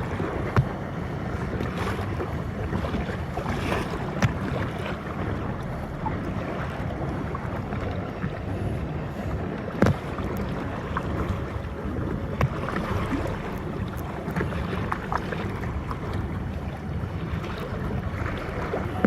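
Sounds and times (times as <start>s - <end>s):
water sloshing around kayak: 0.0s - 19.0s
wind on microphone: 0.0s - 19.0s
sharp knocks or splashes: 0.4s - 0.8s, 9.8s - 10.1s, 12.4s - 13.6s.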